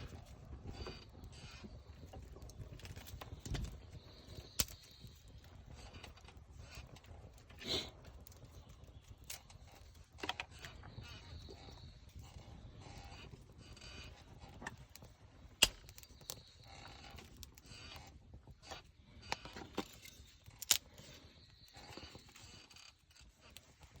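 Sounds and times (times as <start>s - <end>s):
camp gear clicks and knocks: 18.7s - 21.0s.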